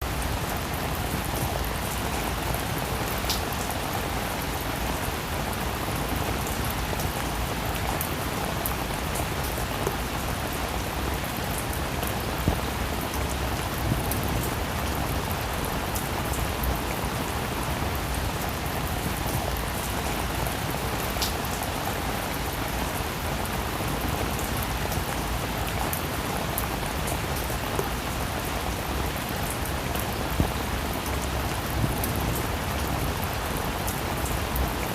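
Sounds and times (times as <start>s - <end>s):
raindrops tapping on surfaces: 0.0s - 34.9s.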